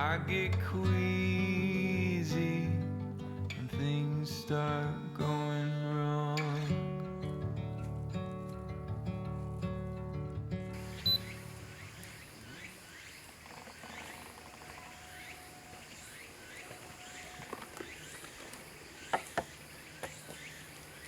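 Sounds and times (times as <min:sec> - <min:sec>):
faint repeating chirp: 0:10.8 - 0:21.0
low hiss: 0:10.8 - 0:21.0.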